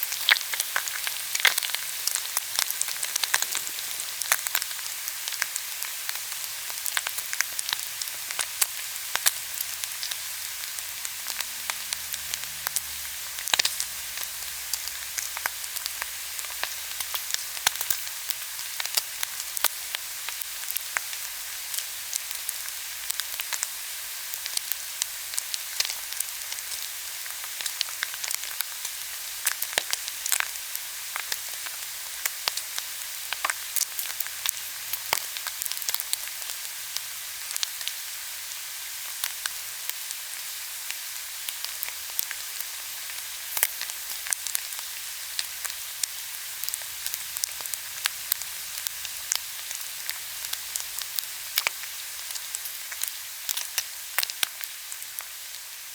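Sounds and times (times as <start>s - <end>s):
meat sizzling on grill: 0.0s - 55.9s
fat popping and crackling: 0.1s - 5.5s.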